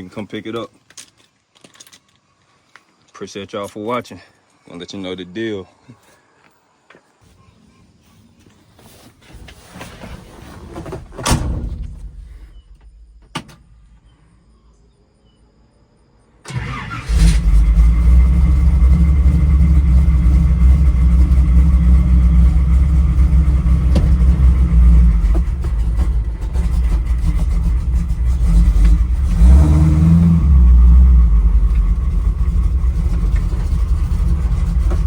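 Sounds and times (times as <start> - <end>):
thump: 10.8 - 13.6, 23.7 - 24.7
engine starting and running: 16.4 - 35.0.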